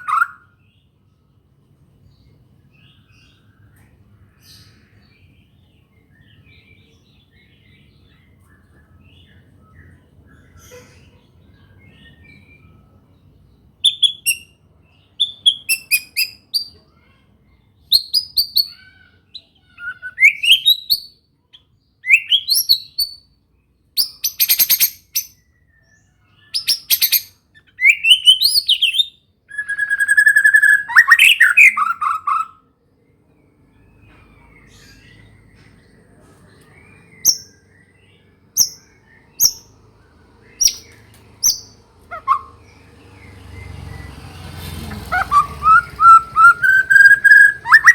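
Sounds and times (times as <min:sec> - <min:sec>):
bird singing whistles and trills: 0:13.8 - 0:14.6, 0:15.2 - 0:16.7, 0:17.9 - 0:23.3, 0:24.0 - 0:32.6, 0:36.7 - 0:39.8, 0:40.4 - 0:44.3, 0:44.9 - 0:47.9.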